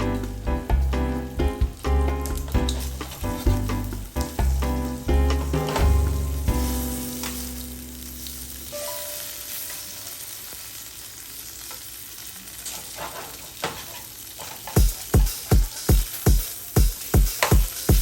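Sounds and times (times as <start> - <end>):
strong drum beat: 0.0 - 7.0, 14.8 - 18.0
music with held notes: 0.0 - 9.5
food sizzling in a pan: 1.2 - 18.0.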